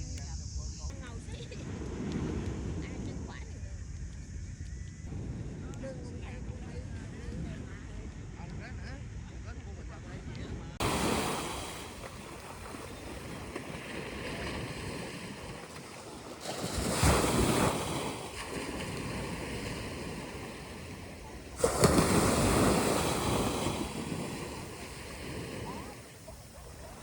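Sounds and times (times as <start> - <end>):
big waves breaking: 0.9 - 3.5, 10.8 - 27.0
sea waves washing onto beach: 1.1 - 3.4, 10.8 - 27.0.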